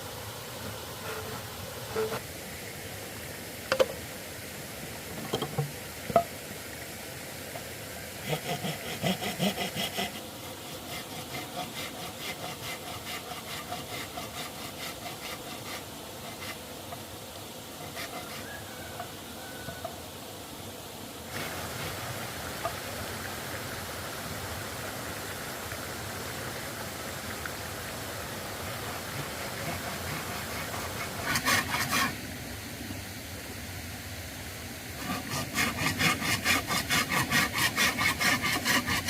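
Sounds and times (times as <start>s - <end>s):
hand saw sawing wood: 1.0s - 2.2s, 8.2s - 17.0s, 17.7s - 18.6s, 28.8s - 32.2s, 35.0s - 39.0s.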